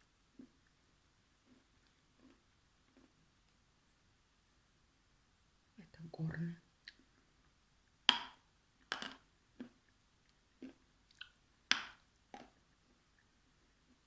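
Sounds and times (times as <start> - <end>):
wet mouth smacks chewing: 6.8 - 7.1, 8.2 - 9.8, 10.6 - 12.6.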